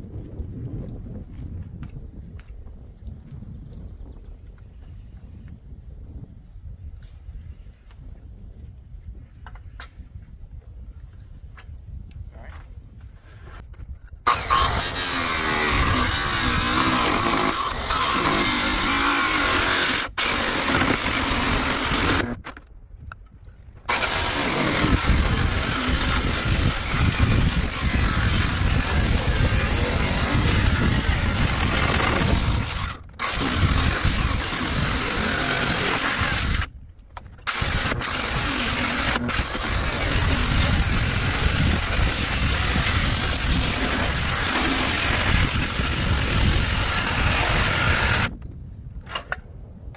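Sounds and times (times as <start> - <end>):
circular saw cutting metal: 14.3 - 22.4, 23.9 - 36.7, 37.5 - 48.3.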